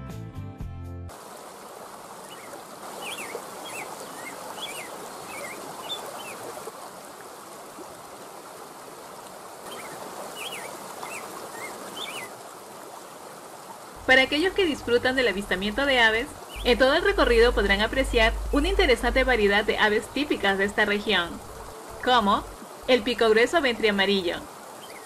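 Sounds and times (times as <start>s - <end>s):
running water rushing: 1.1s - 25.0s
bird chirping: 2.3s - 6.4s, 9.7s - 12.3s, 14.7s - 18.5s, 24.8s - 25.0s.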